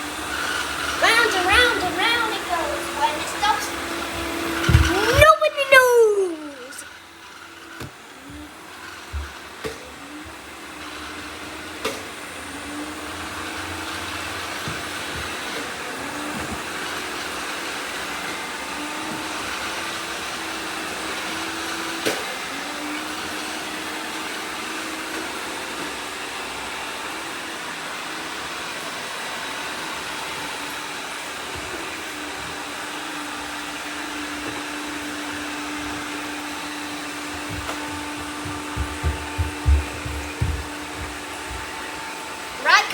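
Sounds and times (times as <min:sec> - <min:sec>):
robot vacuums whirring: 0:00.0 - 0:42.9
sharp knocks: 0:37.4 - 0:41.7.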